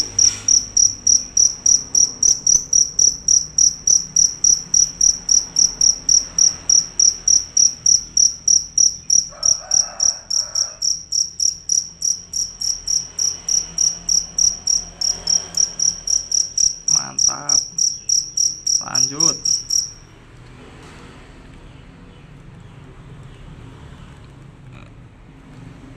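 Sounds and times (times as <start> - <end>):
cricket chirping: 0.0 - 20.0.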